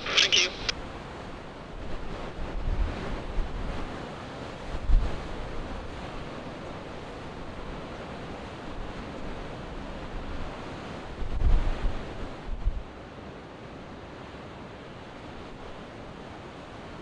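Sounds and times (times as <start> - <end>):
wind gusting on microphone: 0.0 - 13.0
wind blowing over sea: 0.0 - 17.0.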